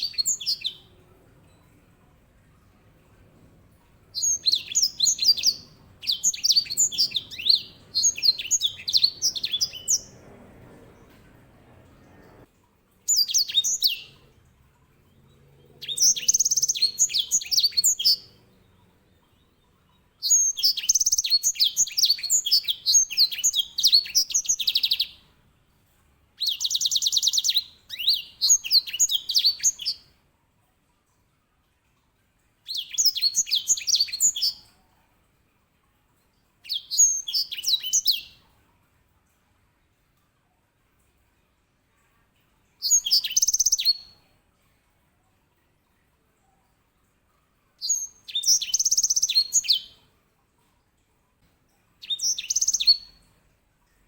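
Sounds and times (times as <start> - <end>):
finch singing warbling phrases: 4.2 - 10.2.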